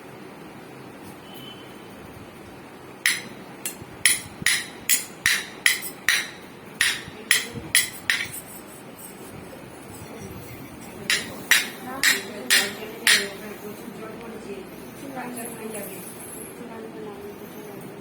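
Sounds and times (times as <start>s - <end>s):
sharp ringing knocks: 3.1s - 8.4s, 11.1s - 13.4s.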